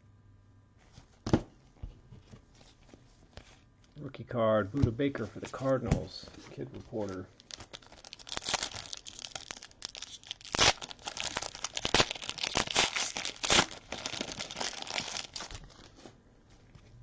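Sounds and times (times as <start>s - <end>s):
wrapper tearing and crinkling: 6.9s - 16.0s.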